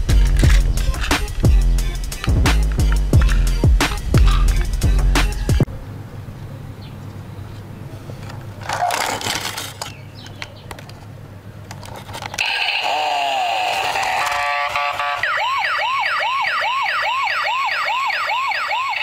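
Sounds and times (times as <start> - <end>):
handling rustle: 7.5 - 12.4
toy electronic siren: 12.4 - 19.0.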